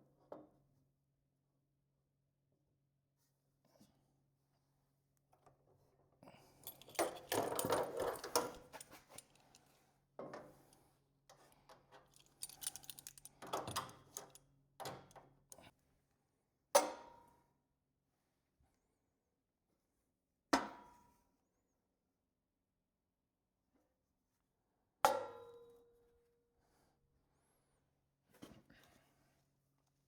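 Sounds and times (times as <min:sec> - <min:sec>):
metal objects clattering: 0:06.6 - 0:09.6, 0:12.2 - 0:14.4.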